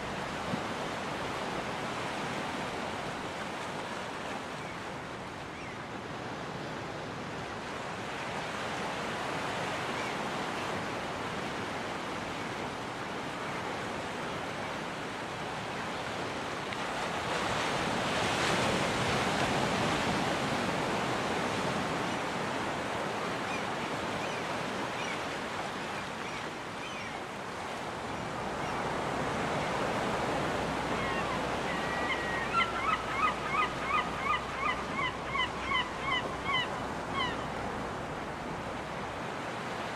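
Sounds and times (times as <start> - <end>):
ocean surf washing onto beach: 0.0 - 39.9
seagull calling: 30.8 - 37.5.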